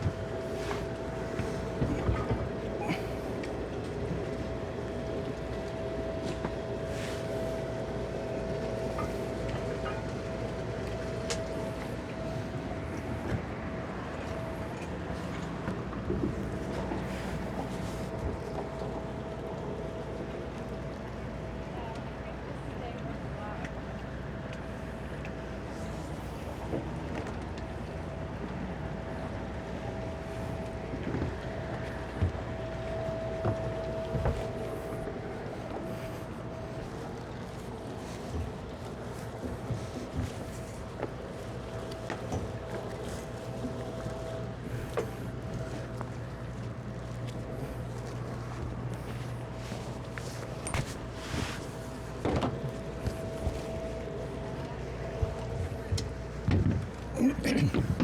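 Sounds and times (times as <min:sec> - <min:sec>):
outboard motors running: 0:00.0 - 0:58.0.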